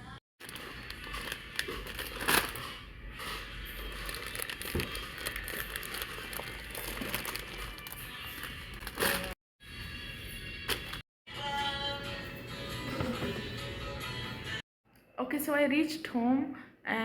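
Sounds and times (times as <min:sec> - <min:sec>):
packaging crinkling and rustling: 0:00.4 - 0:09.4.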